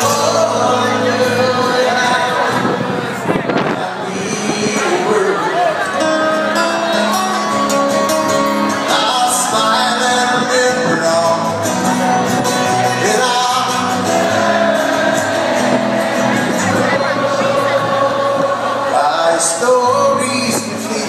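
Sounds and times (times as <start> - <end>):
electric guitar: 0.0 - 21.0
drums: 6.9 - 19.2
person singing: 8.6 - 21.0.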